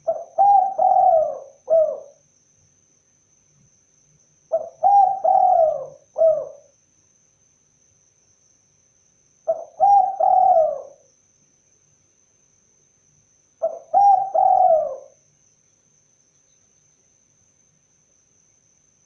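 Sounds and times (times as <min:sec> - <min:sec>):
dove cooing: 0:00.0 - 0:02.2, 0:04.5 - 0:06.7, 0:09.5 - 0:11.0, 0:13.6 - 0:15.2.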